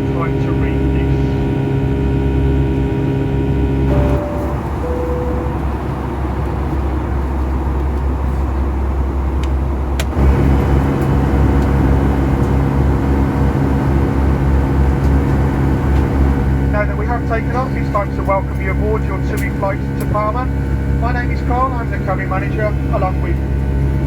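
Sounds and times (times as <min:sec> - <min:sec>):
airplane cabin engine noise: 0:00.0 - 0:24.0
steady hum: 0:03.9 - 0:07.8.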